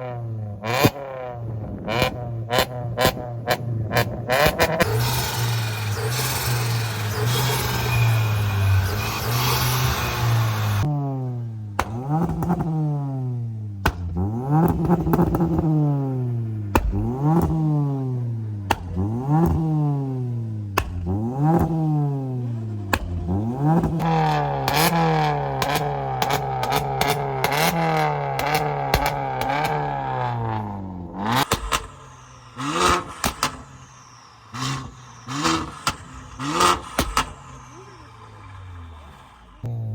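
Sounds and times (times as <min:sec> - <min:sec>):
car engine revving: 0:00.0 - 0:39.9
exhaust pops and crackles: 0:00.6 - 0:05.3, 0:11.7 - 0:12.8, 0:13.7 - 0:15.8, 0:16.6 - 0:17.8, 0:18.6 - 0:20.0, 0:20.6 - 0:39.8.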